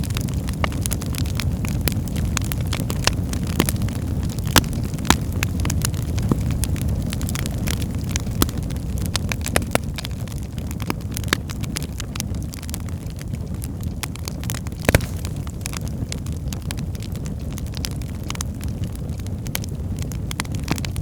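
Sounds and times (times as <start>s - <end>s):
fire crackling: 0.0s - 21.0s
fire flames rumbling: 0.0s - 21.0s
logs popping: 4.4s - 9.8s, 14.6s - 17.1s.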